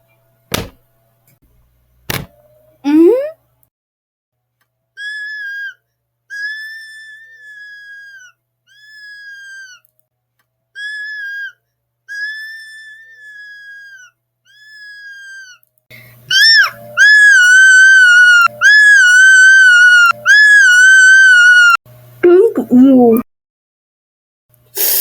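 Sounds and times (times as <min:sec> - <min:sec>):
high whistle-like tone: 0:16.0 - 0:21.8
loud wavering tone: 0:16.0 - 0:21.8.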